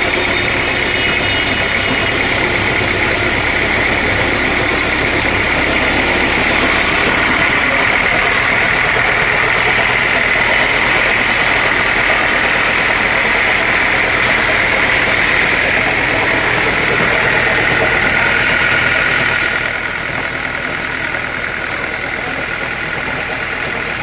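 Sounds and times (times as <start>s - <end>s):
sawmill saw cutting log: 0.0s - 24.0s.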